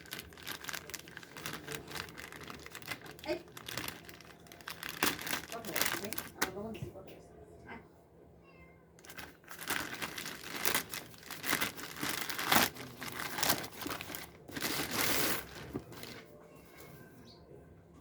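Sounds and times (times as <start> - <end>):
packaging crinkling and tearing: 0.0 - 6.6, 9.0 - 16.3.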